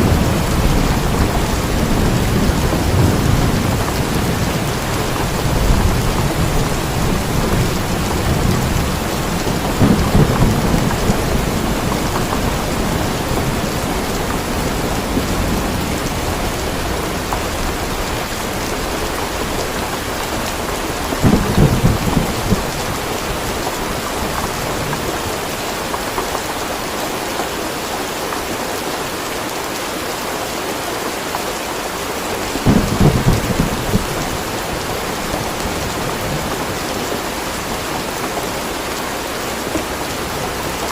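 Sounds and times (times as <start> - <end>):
rolls of thunder: 0.0 - 13.6, 21.2 - 23.6
steady rain falling: 0.0 - 40.9.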